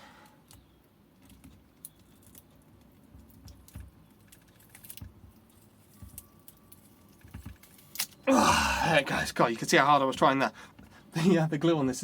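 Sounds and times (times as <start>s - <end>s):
plastic battery case creaking and clicking: 0.4s - 8.3s.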